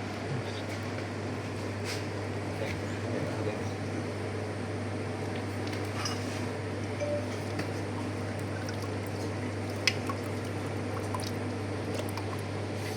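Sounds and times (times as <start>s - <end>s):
low machine hum: 0.0s - 12.9s
liquid trickling: 7.7s - 12.7s.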